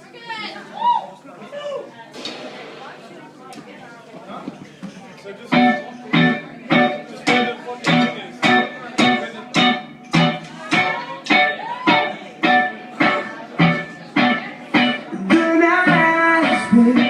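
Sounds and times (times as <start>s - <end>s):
band playing: 2.2s - 3.5s, 5.5s - 17.0s
electric guitar chopped chords: 2.2s - 3.5s, 5.5s - 17.0s.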